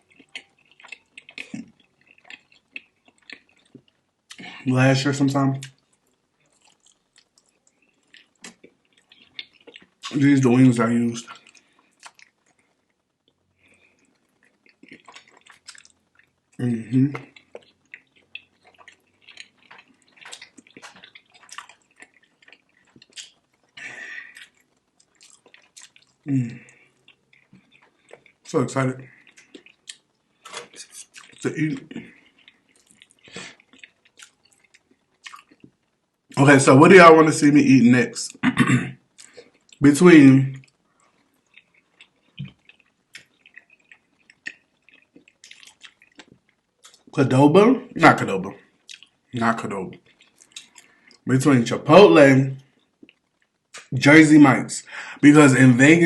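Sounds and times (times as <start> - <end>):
wet chewing and lip smacking: 0.0 - 4.6, 5.6 - 10.2, 11.3 - 36.0, 39.1 - 39.8, 40.6 - 47.2, 48.8 - 49.3, 49.9 - 51.3, 52.6 - 53.9
wet mouth clicks and lip smacks: 17.1 - 23.7, 32.4 - 35.8, 41.5 - 47.1, 48.9 - 49.2, 50.0 - 51.2.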